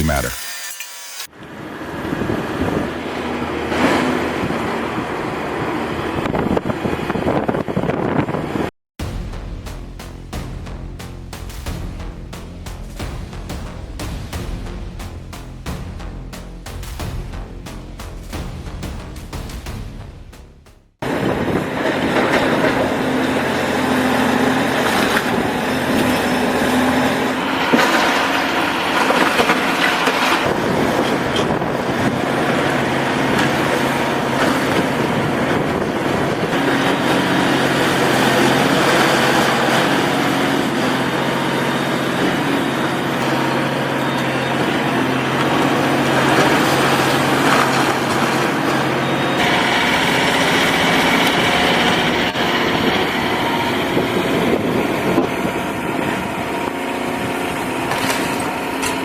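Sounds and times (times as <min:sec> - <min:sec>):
rumbling and clattering: 0:09.0 - 0:21.2
excavator diesel engine running: 0:36.1 - 0:59.0.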